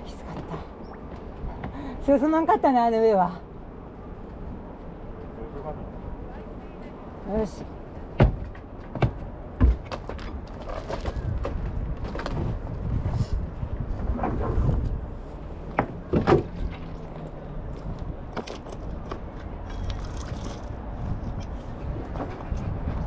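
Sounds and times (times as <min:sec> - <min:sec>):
wind on microphone: 0:11.0 - 0:15.8, 0:16.4 - 0:23.0.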